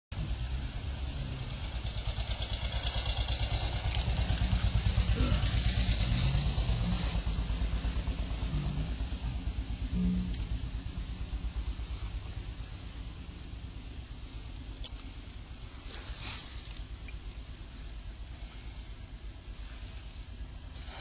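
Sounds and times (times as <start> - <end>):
small engine running: 0.3 - 9.6.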